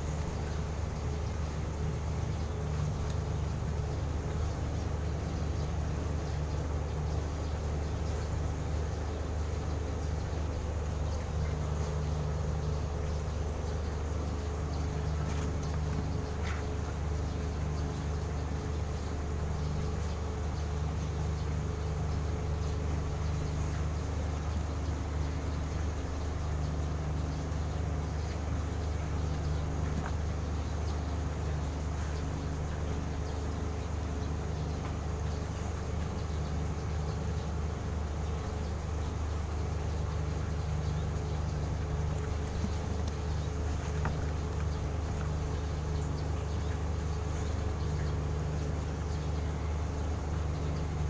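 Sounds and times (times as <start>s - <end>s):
low machine hum: 0.0s - 51.0s
faint high ticks: 3.0s - 3.3s.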